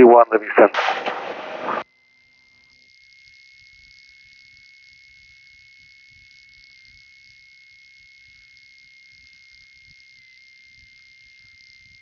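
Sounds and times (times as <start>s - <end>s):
radio static burst: 0.0s - 1.8s
thin high whine: 0.5s - 1.8s.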